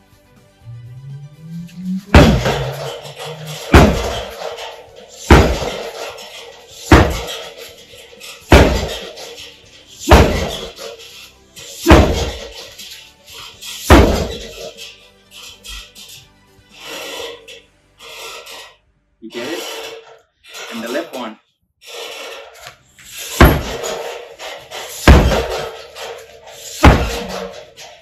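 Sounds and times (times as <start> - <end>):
punches hitting tyre punching bag: 2.0 - 11.0, 11.6 - 14.8, 23.2 - 28.0.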